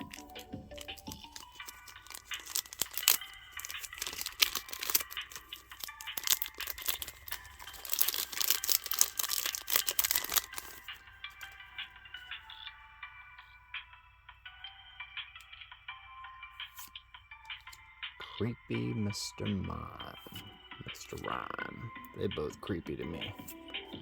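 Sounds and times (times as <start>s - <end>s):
foil wrapper crinkling and tearing: 0.0s - 11.6s
soft background music: 0.0s - 24.0s.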